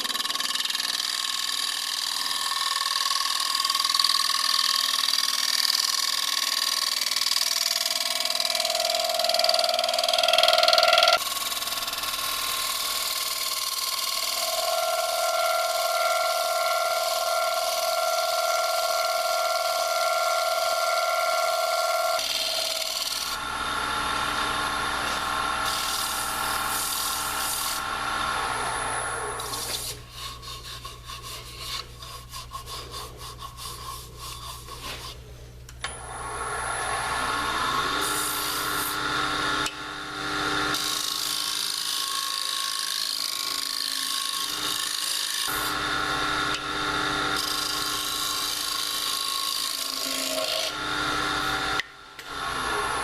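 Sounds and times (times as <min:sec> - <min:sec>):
lathe humming: 0:07.2 - 0:34.4, 0:35.8 - 0:53.0
scraper rasping on spinning wood: 0:29.4 - 0:35.3.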